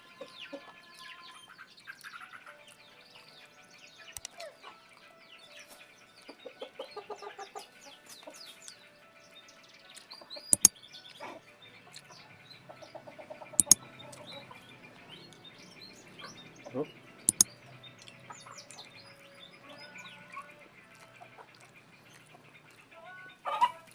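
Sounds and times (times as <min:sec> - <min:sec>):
bird clucking and chirping: 0:05.6 - 0:08.8, 0:10.0 - 0:22.8.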